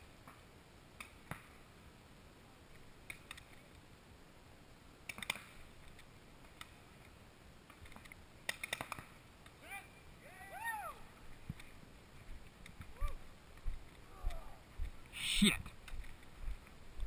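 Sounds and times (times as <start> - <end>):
paintball guns popping: 5.1 - 5.6, 7.8 - 9.2.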